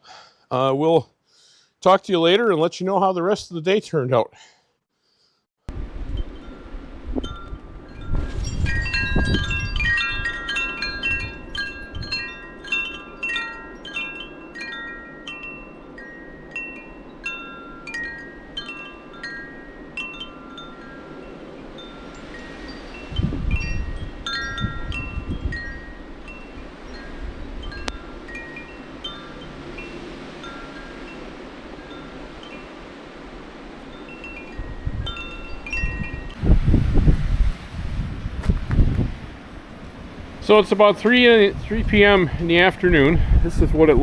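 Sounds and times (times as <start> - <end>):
wind rumble on microphone: 5.7 - 13.3, 21.3 - 44.0
gusty wind: 5.7 - 44.0
wind chimes ringing: 6.1 - 36.6.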